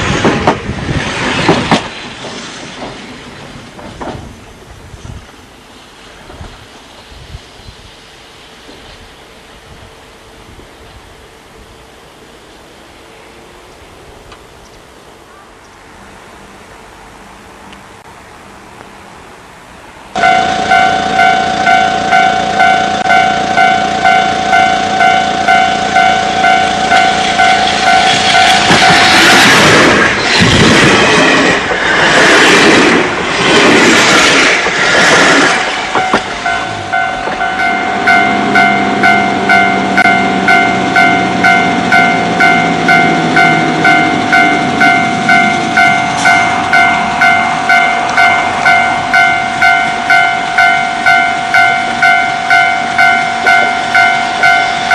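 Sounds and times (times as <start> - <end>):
electric train passing: 0.0 - 54.9
low falling whine: 20.1 - 30.9, 35.5 - 54.9
level crossing warning bell: 20.2 - 29.2, 35.9 - 54.9.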